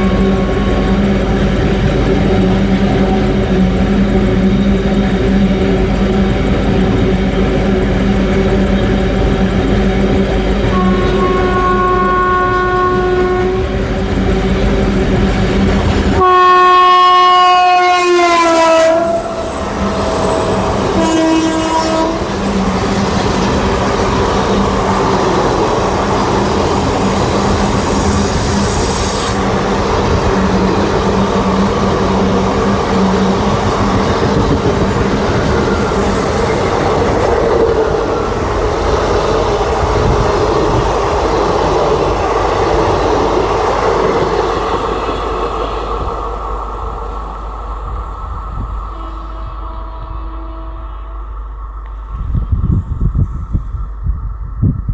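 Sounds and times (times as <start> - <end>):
locomotive horn blasts: 10.7 - 13.8, 16.2 - 22.6, 48.9 - 51.4
train wheels clattering on rails: 19.6 - 46.4.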